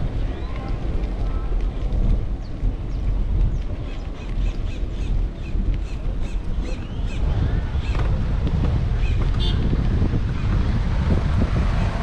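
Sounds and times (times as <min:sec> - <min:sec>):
wind buffeting microphone: 0:00.0 - 0:12.0
birds chirping: 0:02.4 - 0:08.2.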